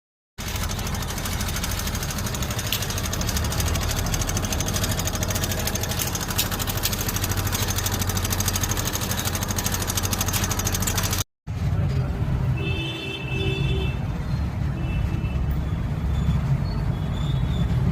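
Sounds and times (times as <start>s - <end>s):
scooter engine idling: 0.4s - 11.2s.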